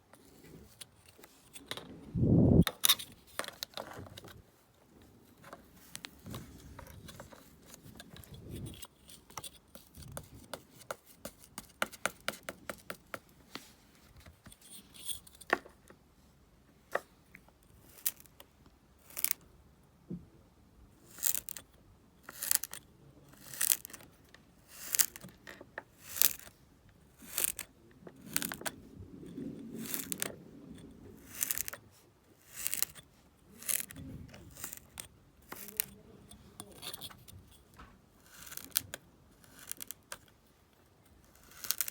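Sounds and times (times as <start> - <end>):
tool scraping and slicing sand: 29.8 - 30.4, 31.2 - 31.8, 32.4 - 36.0, 38.2 - 38.8, 39.4 - 40.1, 41.3 - 41.9.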